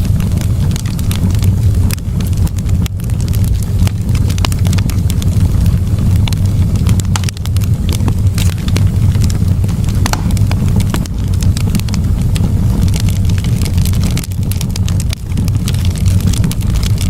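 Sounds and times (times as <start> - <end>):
campfire wood crackling and popping: 0.0 - 17.0
steady low rumble: 0.0 - 17.0.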